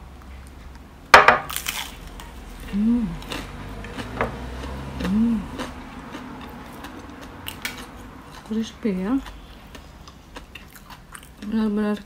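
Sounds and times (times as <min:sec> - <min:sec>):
crunching fried batter: 0:01.4 - 0:12.0
chewing: 0:01.5 - 0:12.0
person humming mmm: 0:02.6 - 0:03.4, 0:04.9 - 0:05.7.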